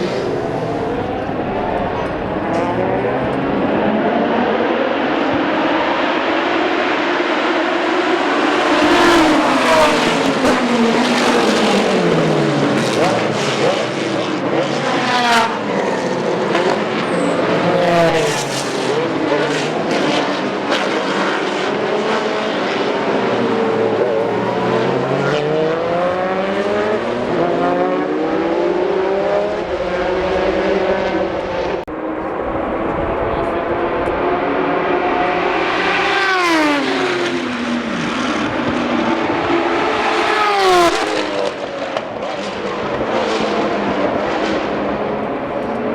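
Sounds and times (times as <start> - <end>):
engine upshifts: 0.0 - 45.9
racing cars passing at full throttle: 0.0 - 45.9.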